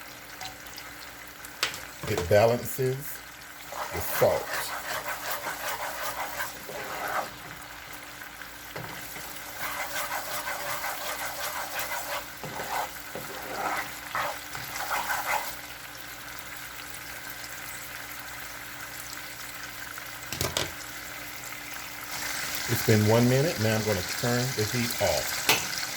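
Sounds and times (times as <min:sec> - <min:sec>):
sauce sizzling in a pan: 0:00.0 - 0:25.9
stirring in a pan: 0:00.3 - 0:17.5.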